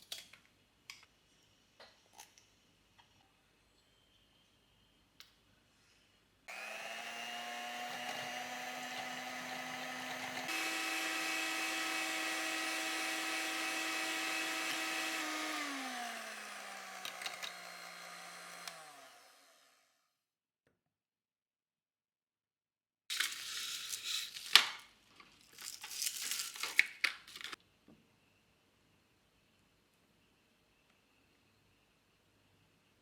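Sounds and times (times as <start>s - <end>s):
kitchen appliance motor running: 6.5s - 20.0s.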